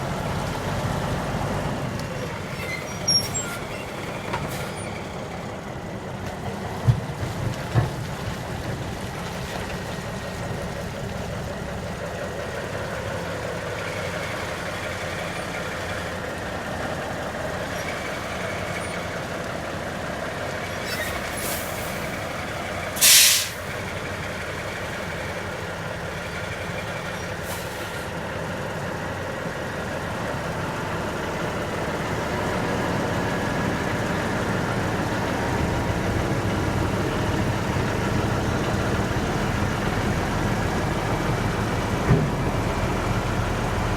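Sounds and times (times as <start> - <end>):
truck diesel engine idling: 0.0 - 43.9
air brake hiss: 20.9 - 22.3, 23.0 - 23.8, 27.4 - 28.1.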